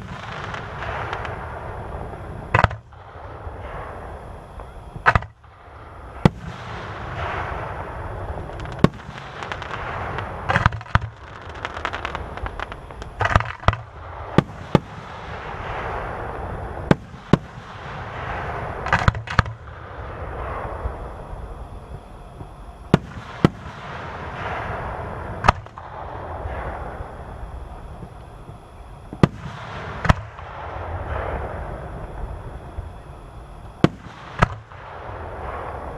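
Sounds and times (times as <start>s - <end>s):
fireworks bursting with bangs: 0.0s - 35.9s
fireworks hissing crackle: 0.0s - 35.9s.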